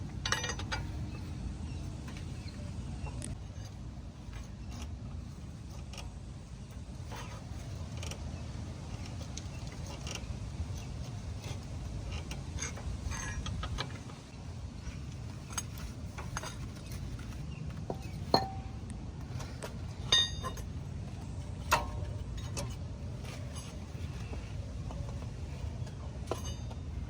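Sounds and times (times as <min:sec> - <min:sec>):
metal tools clinking: 0:00.2 - 0:01.3, 0:14.8 - 0:27.0
ringing metal clinks: 0:20.1 - 0:20.6.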